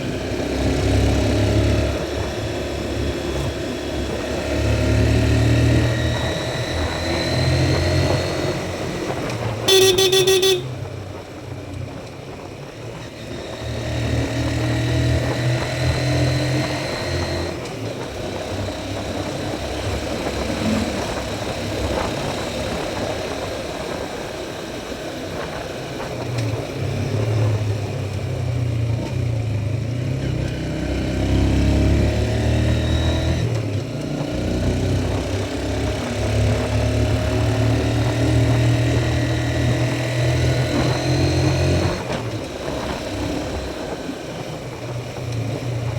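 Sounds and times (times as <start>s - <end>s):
motorbike engine revving: 0.0s - 10.8s, 13.3s - 24.0s, 29.6s - 44.5s
short horn toot: 9.6s - 10.8s.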